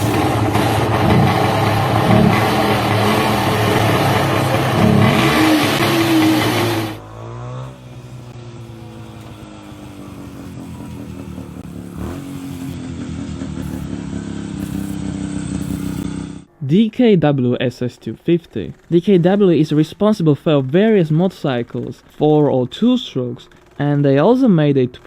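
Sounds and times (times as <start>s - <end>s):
engine running: 0.0s - 16.5s, 23.5s - 23.8s
motorcycle engine revving: 0.0s - 16.5s.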